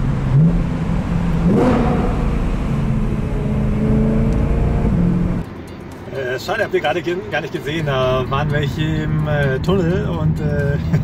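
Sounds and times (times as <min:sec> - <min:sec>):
car engine accelerating: 0:00.0 - 0:05.5.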